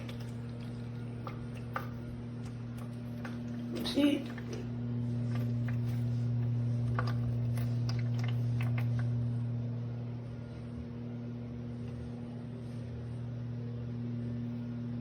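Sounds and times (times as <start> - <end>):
toy washing machine humming: 0.0 - 15.0.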